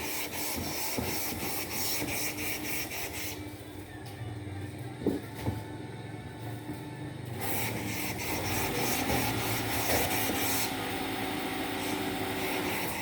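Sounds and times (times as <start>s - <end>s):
steam iron hissing: 0.0s - 3.4s, 7.4s - 13.0s.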